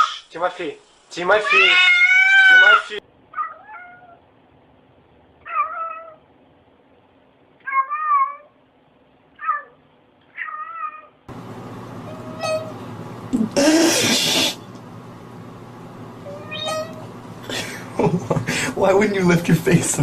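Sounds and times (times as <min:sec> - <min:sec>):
cat meowing: 0:01.4 - 0:04.2, 0:05.4 - 0:06.3, 0:07.6 - 0:08.6, 0:09.4 - 0:11.2, 0:12.1 - 0:12.7, 0:16.2 - 0:17.1.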